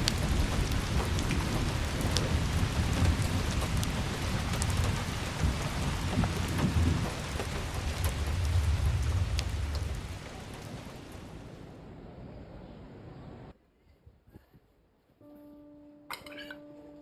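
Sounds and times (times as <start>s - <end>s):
rolling rumble of thunder: 0.0s - 13.5s
steady rain: 0.0s - 13.5s.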